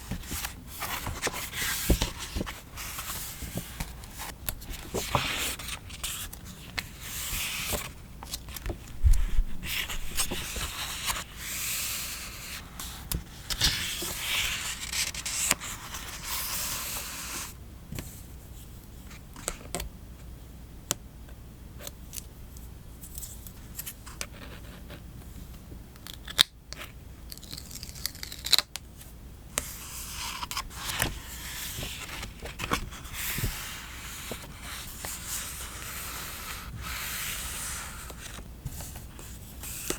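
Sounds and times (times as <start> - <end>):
paper rustling and scraping: 0.0 - 17.5, 29.6 - 39.9.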